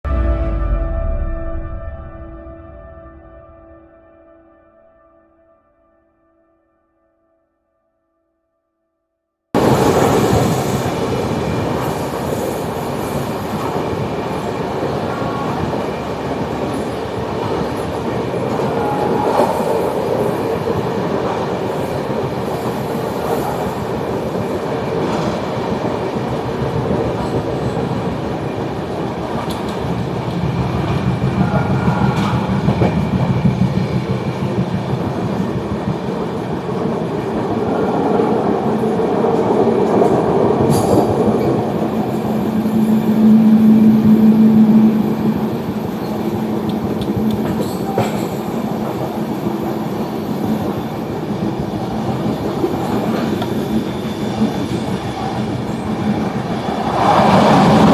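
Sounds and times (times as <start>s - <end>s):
train wheels rumbling on rail: 9.6s - 57.9s.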